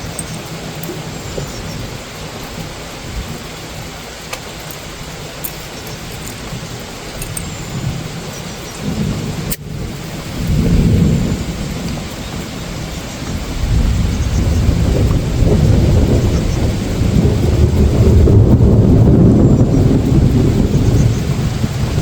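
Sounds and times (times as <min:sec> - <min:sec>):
steady rain: 0:00.0 - 0:22.0
deep rolling thunder: 0:06.5 - 0:22.0.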